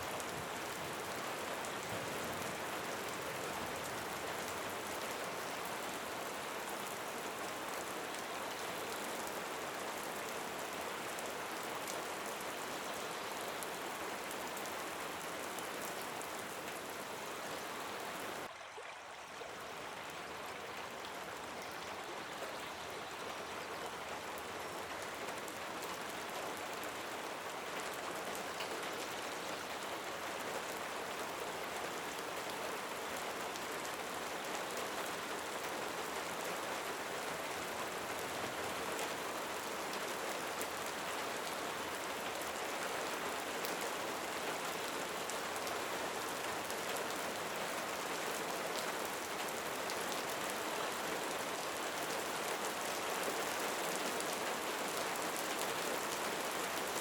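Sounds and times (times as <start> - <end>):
steady rain falling: 0.0 - 18.5, 19.4 - 57.0.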